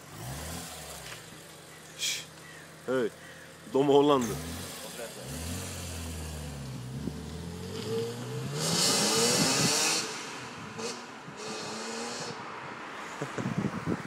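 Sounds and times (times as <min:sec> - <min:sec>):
car engine accelerating hard: 0:00.0 - 0:01.5, 0:03.5 - 0:12.4.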